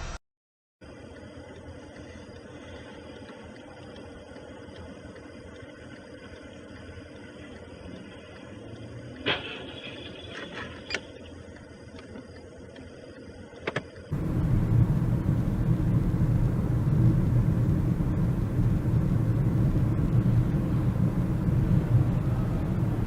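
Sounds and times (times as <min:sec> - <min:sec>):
car rumbling on the move: 0:14.1 - 0:23.0.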